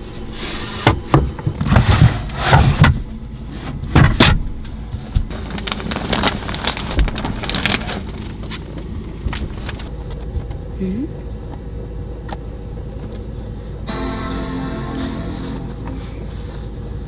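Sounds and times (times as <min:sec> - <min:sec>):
tent flapping and rattling: 0:05.3 - 0:09.9.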